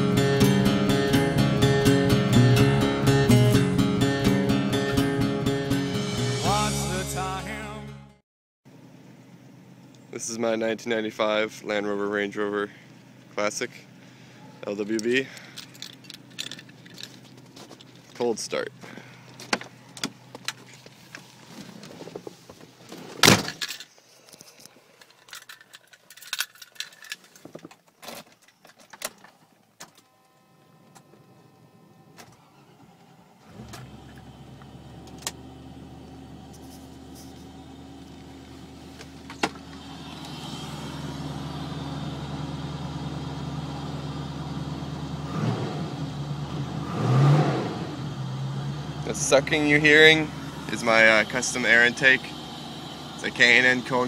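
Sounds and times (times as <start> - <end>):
car engine starting and idling: 0.0 - 7.9, 11.3 - 23.7, 29.6 - 54.0
keys jangling: 15.3 - 18.0, 25.0 - 27.4.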